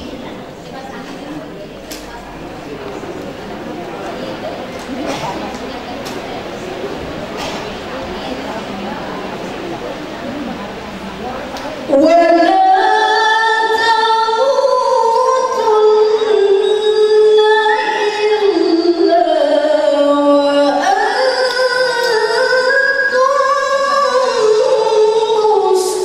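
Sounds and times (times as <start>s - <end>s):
woman reciting melodically: 0.0s - 26.0s.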